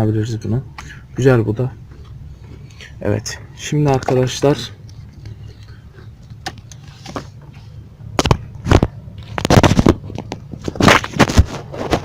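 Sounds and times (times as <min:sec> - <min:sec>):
low steady hum: 0:00.0 - 0:12.0
clattering and scraping of parts: 0:03.8 - 0:12.0.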